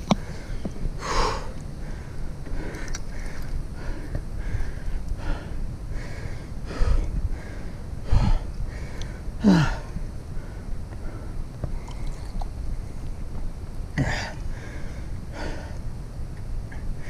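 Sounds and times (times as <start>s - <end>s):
low riding rumble: 0.0s - 17.0s
person breathing hard: 0.1s - 12.2s, 14.0s - 15.9s.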